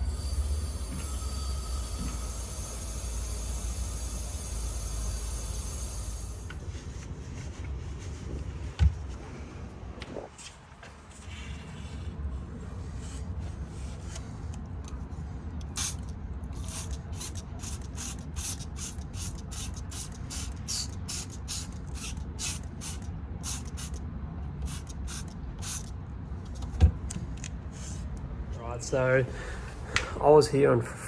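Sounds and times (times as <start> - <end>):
short hissing spurts: 15.7 - 24.0, 24.6 - 25.9.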